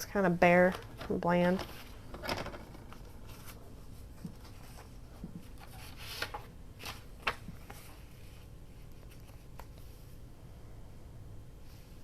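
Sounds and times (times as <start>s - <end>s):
paper rustling: 0.6s - 9.8s.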